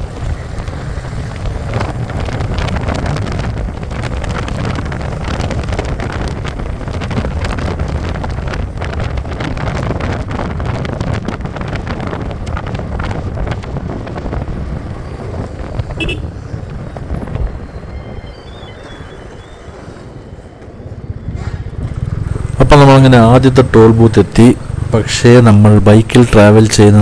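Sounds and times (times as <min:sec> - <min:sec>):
wind buffeting microphone: 0:00.0 - 0:27.0
motorcycle engine running: 0:21.6 - 0:25.1.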